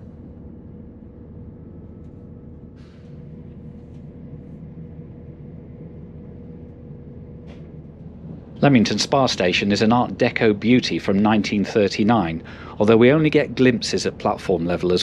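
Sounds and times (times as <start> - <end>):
faint steady hum: 0.0 - 15.0
train rumble from inside cabin: 0.0 - 15.0.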